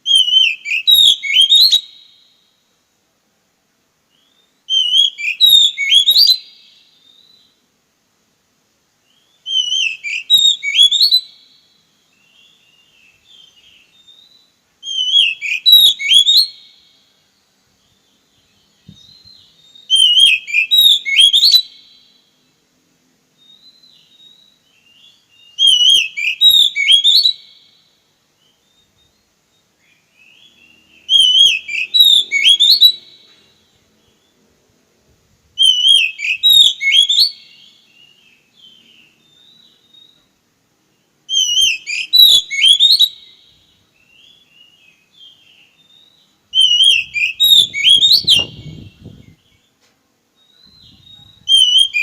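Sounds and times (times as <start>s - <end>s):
songbird whistled phrase: 0.0s - 1.9s, 4.2s - 7.4s, 9.2s - 11.3s, 12.5s - 16.6s, 18.8s - 21.8s, 23.5s - 27.6s, 30.2s - 33.6s, 35.6s - 40.3s, 41.3s - 49.7s, 50.4s - 52.0s
faint soft bird notes: 9.0s - 52.0s.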